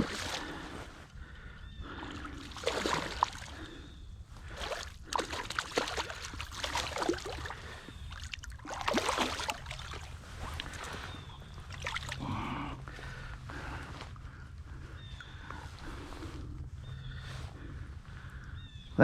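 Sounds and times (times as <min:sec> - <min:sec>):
creek water splashing: 0:00.0 - 0:00.9, 0:01.8 - 0:12.6.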